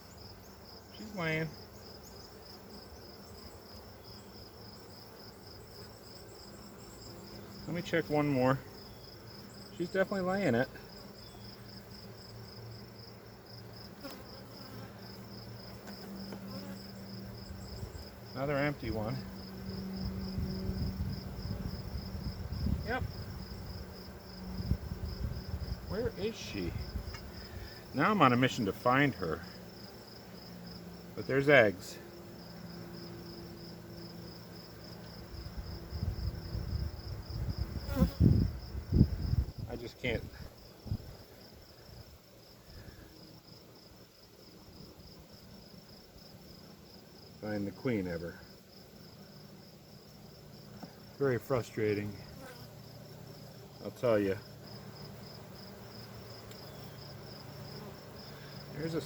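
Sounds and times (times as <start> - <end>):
bees buzzing: 0.0 - 39.4, 48.8 - 59.0
high pulsing insect chirp: 0.0 - 59.0
knocks and rustling of hive frames: 13.8 - 18.3.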